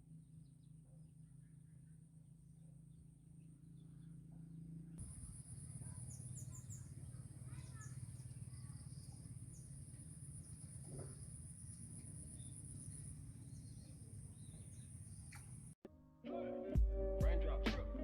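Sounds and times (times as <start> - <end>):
high bird chirps: 5.0 - 15.8
insects buzzing: 5.0 - 15.8.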